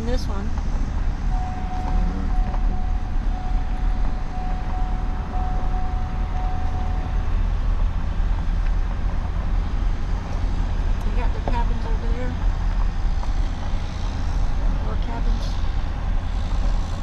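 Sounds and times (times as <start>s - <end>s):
low engine and road rumble: 0.0s - 17.0s
faint thin steady tone: 1.3s - 7.5s.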